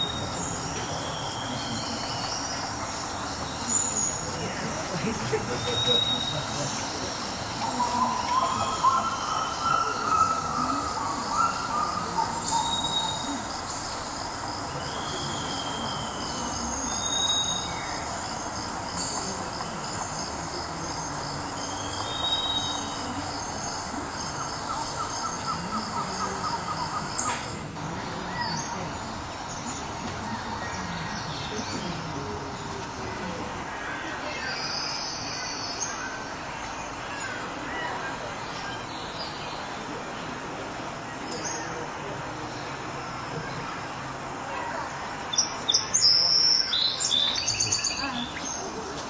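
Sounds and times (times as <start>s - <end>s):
birds whistling calls: 0.0s - 18.2s
steady background hiss: 0.0s - 49.0s.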